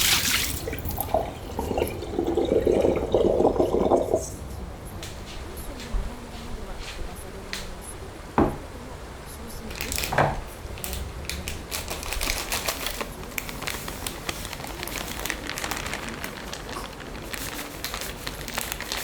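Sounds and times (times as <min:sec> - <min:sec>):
crackling and clicking: 0:09.6 - 0:19.0.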